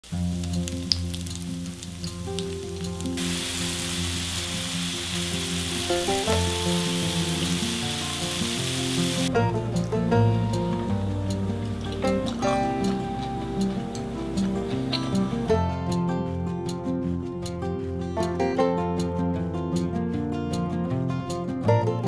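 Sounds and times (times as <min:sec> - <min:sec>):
food sizzling in oil: 0:00.0 - 0:09.3
light plucked music: 0:00.0 - 0:22.0.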